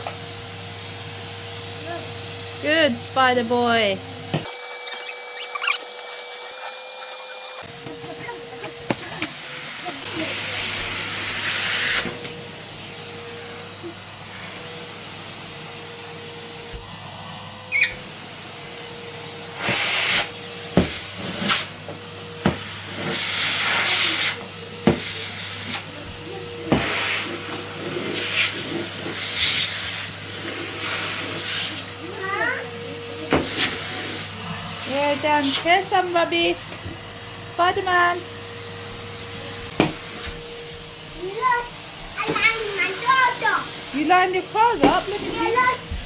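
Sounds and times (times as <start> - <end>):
vacuum cleaner running: 0.0 - 46.0
vacuum nozzle knocking: 19.6 - 25.9, 33.2 - 37.0, 39.6 - 40.5, 44.3 - 46.0.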